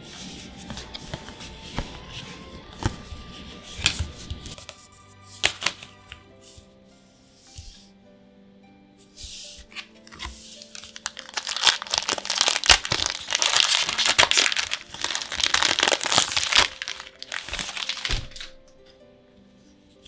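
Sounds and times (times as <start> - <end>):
plastic foil wrapper crinkling: 9.8 - 18.9.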